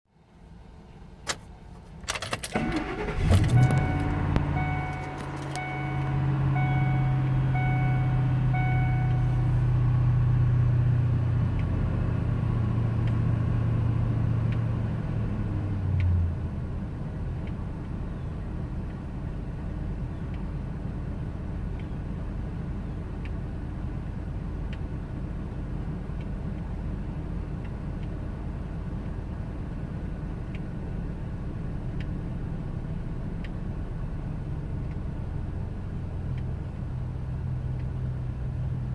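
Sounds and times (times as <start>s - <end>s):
car engine starting and idling: 0.2s - 38.9s
dashboard warning chime beeping: 2.1s - 9.6s.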